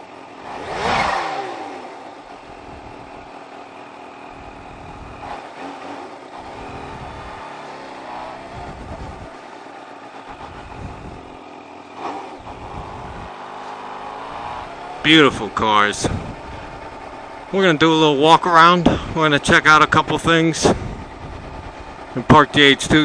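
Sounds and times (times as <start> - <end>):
motorcycle engine running: 0.0 - 23.0
wind rumbling on microphone: 2.5 - 3.3, 4.4 - 5.2, 6.5 - 7.4, 8.4 - 9.4, 10.3 - 11.4, 12.4 - 13.4, 16.0 - 17.1, 20.6 - 22.1.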